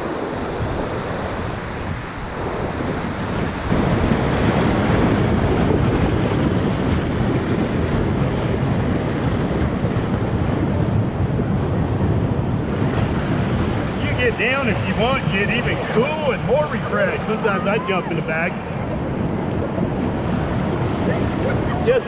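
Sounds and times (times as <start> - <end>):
wind buffeting microphone: 0.0 - 22.0
whitewater rushing: 12.4 - 22.0.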